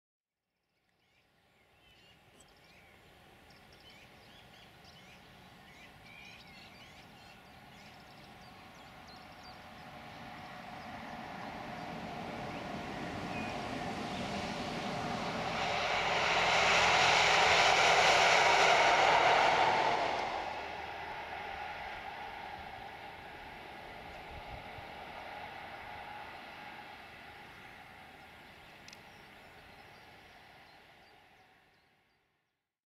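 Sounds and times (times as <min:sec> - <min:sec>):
diesel train passing: 0:02.2 - 0:31.8.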